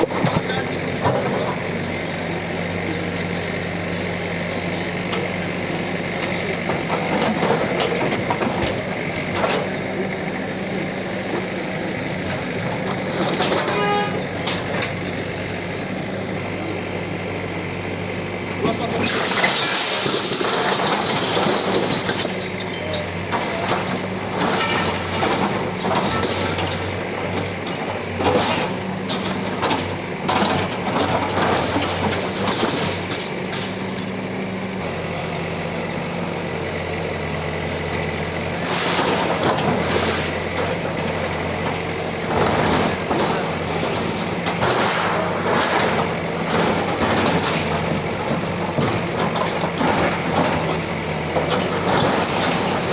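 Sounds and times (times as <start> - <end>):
bulldozer diesel engine: 0.0 - 52.9.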